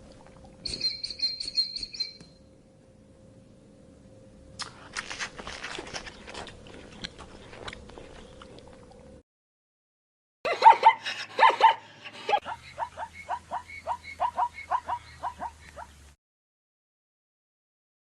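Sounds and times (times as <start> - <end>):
faint steady hum: 0.0 - 9.2
animal crunching and chewing: 4.6 - 9.2.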